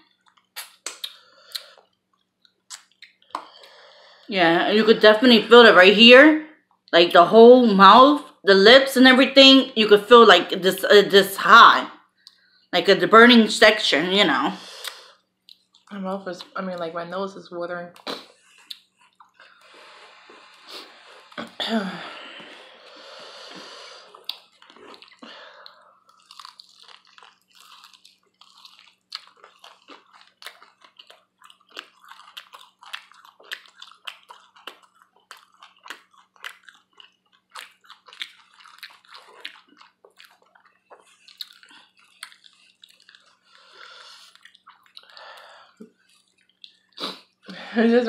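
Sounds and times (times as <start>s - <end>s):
chewing and biting: 0.0s - 3.7s, 14.8s - 16.6s, 18.0s - 21.5s, 22.4s - 47.4s
wet mouth clicks and smacks: 0.1s - 3.8s, 14.8s - 16.5s, 18.0s - 19.7s, 24.1s - 43.6s, 44.2s - 47.2s
noisy breaths: 12.2s - 12.8s, 19.4s - 21.4s, 22.0s - 24.3s.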